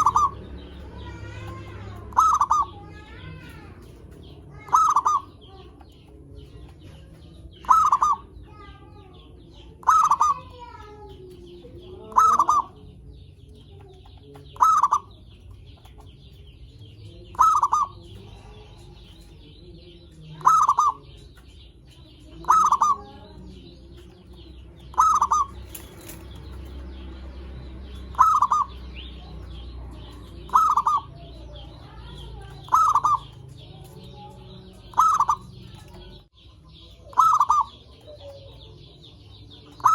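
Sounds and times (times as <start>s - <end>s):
dove cooing: 0.0s - 5.7s, 7.0s - 8.4s, 9.8s - 10.7s, 11.7s - 12.9s, 14.5s - 15.2s, 17.3s - 19.2s, 20.3s - 21.2s, 22.3s - 23.4s, 24.9s - 26.4s, 28.1s - 34.0s, 34.6s - 36.2s, 37.0s - 39.9s.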